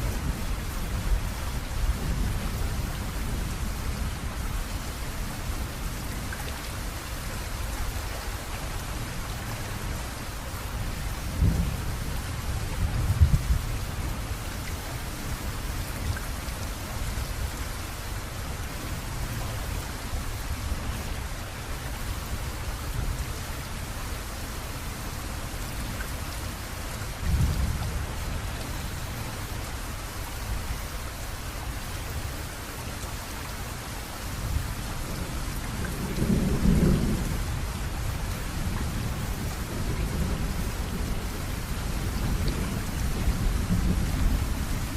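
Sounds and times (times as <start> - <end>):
steady rainfall: 0.0 - 44.9
thunder rumbles: 11.3 - 14.2, 35.1 - 44.9.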